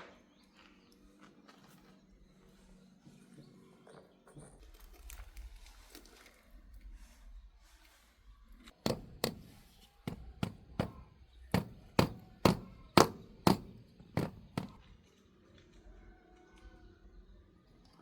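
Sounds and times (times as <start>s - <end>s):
hammer knocking: 8.8s - 14.8s.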